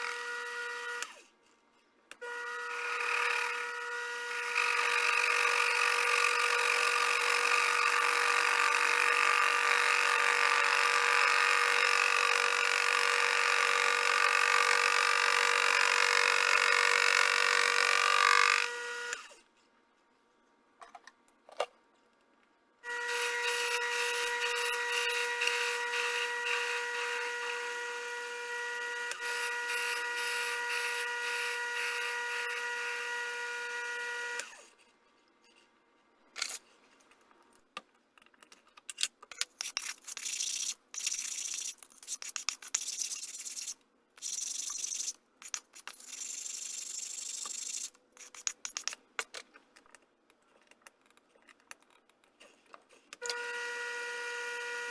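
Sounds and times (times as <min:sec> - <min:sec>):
machine tool whining: 0:22.9 - 0:34.7
scraping or cutting noise: 0:22.9 - 0:34.9, 0:39.4 - 0:49.0.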